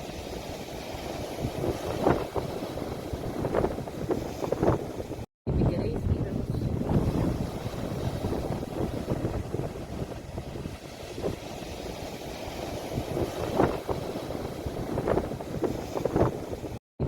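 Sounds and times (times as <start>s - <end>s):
sea waves washing: 0.0s - 16.8s
wind rumbling on microphone: 0.0s - 16.8s.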